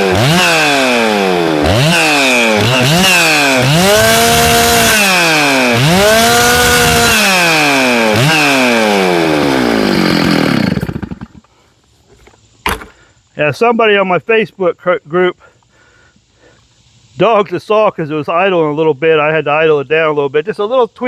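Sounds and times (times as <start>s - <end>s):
chainsaw revving and idling: 0.0s - 11.5s
chainsaw winding down: 0.0s - 11.5s.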